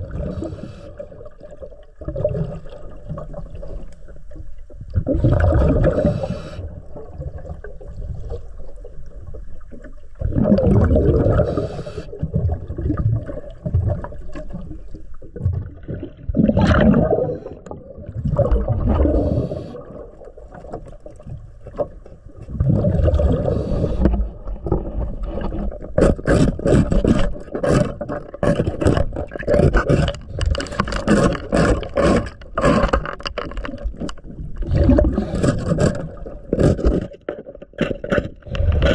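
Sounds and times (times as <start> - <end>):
underwater breath bubbling: 0.0 - 3.9, 4.9 - 8.5, 10.2 - 14.9, 15.6 - 20.3, 22.5 - 32.9, 34.6 - 37.0, 38.4 - 38.9
scraper strokes underwater: 0.0 - 38.9.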